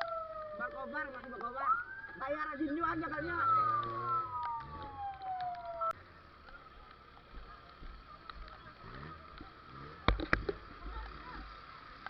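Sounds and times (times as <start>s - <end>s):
emergency vehicle siren: 0.0s - 6.0s.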